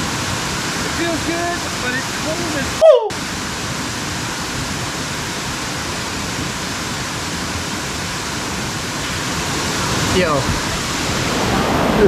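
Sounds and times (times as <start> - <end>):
waterfall rushing into pool: 0.0 - 12.0.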